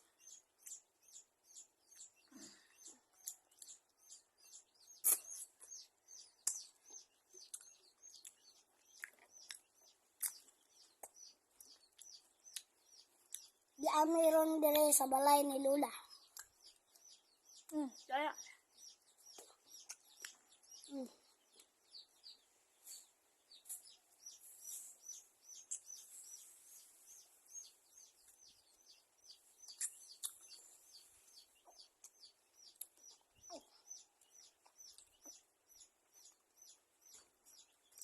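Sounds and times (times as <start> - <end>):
high bird chirps: 15.2 - 38.0.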